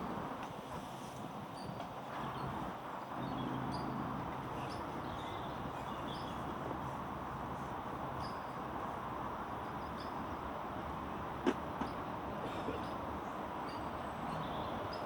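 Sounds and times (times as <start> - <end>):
small birds chirping: 1.6 - 6.6, 11.8 - 15.0.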